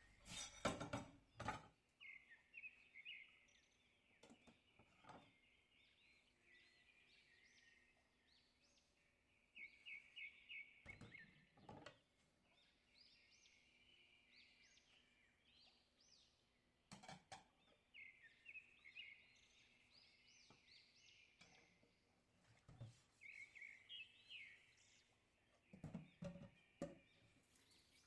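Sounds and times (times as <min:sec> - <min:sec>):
faint bird chirping: 0:01.4 - 0:16.6, 0:17.5 - 0:22.2, 0:22.8 - 0:28.0.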